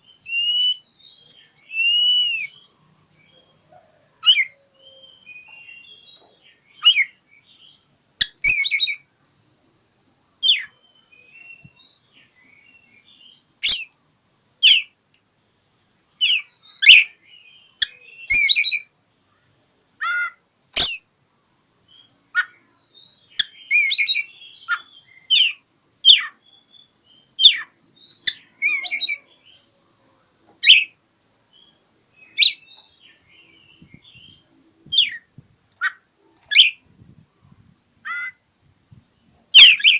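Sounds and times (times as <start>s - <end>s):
soft bird twittering: 31.6s - 39.9s.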